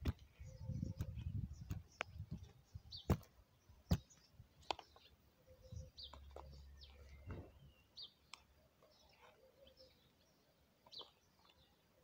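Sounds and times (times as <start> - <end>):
faint bird chirps: 0.0 - 12.0
sharp taps and clicks: 1.0 - 2.5.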